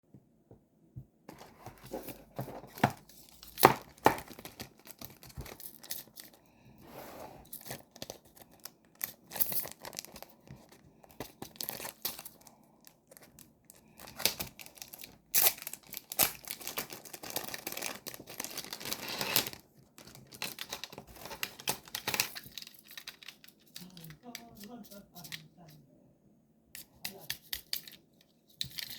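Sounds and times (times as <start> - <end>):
packaging torn and crinkled: 3.2 - 6.3, 7.6 - 10.4, 11.4 - 24.0.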